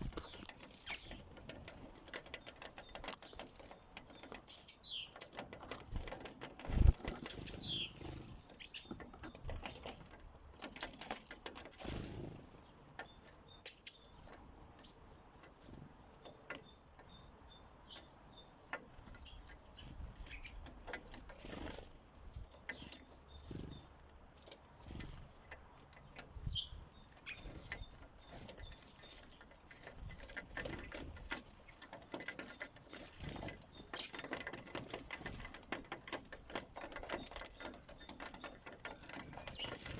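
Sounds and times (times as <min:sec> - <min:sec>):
pecks on bird feeder: 0:00.0 - 0:39.9
sparrows chirping: 0:00.0 - 0:39.9
wings flapping: 0:05.5 - 0:08.5.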